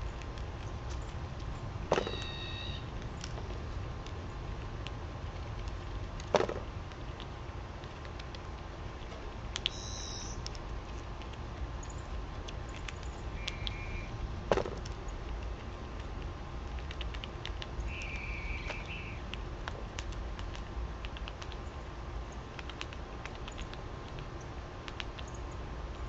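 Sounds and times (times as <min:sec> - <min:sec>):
low steady rumble: 0:00.0 - 0:26.0
short high bird chirps: 0:02.0 - 0:02.8, 0:09.7 - 0:10.4, 0:13.4 - 0:14.1, 0:17.9 - 0:19.2
small ticks: 0:02.2 - 0:14.1, 0:14.8 - 0:26.0.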